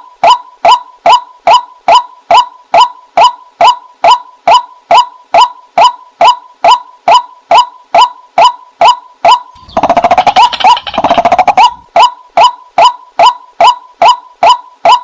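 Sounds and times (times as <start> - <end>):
waterhen calling sharp notes: 0.2 - 15.0
bird rapid chattering: 9.5 - 11.8.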